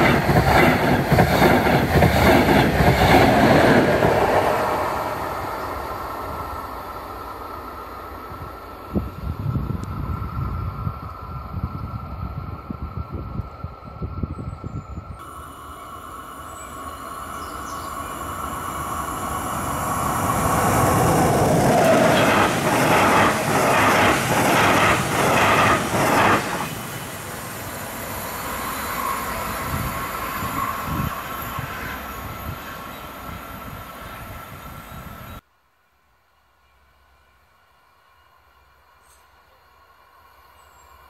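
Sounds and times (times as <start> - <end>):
train passing at speed: 0.0 - 35.4
steady high whine: 15.0 - 35.3.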